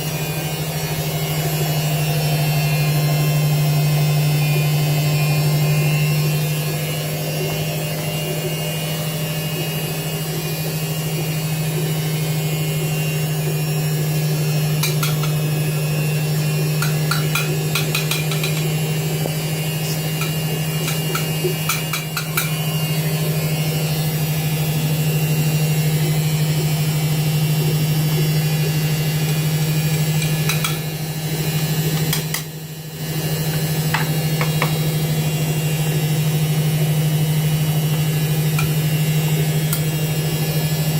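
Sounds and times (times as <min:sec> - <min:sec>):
washing machine humming: 0:00.0 - 0:40.9.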